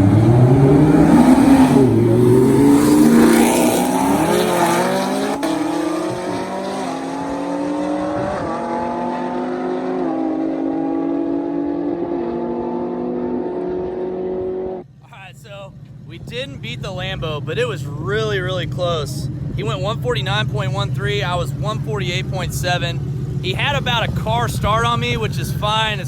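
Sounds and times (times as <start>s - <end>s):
car engine accelerating through gears: 0.0s - 14.8s.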